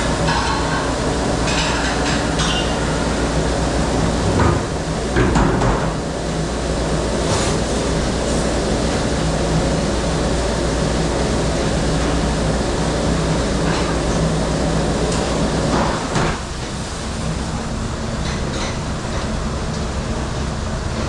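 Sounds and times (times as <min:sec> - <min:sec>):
dish machine running: 0:00.0 - 0:21.0
dishes clinking: 0:00.2 - 0:03.0.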